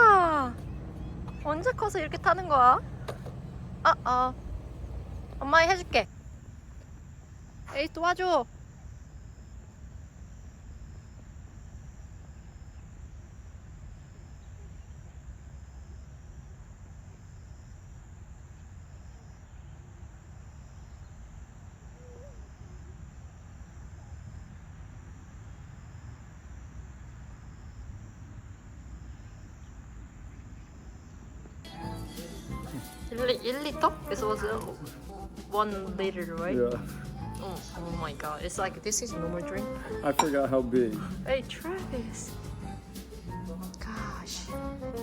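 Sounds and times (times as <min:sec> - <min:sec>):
faint high pulsing: 0:00.0 - 0:06.1
low rumble: 0:00.0 - 0:06.1
faint hiss: 0:31.7 - 0:45.0.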